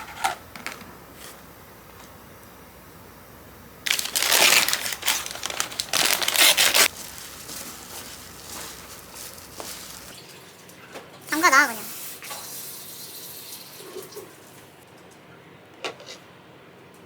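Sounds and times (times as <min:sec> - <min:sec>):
packet crinkling: 0:03.8 - 0:10.2.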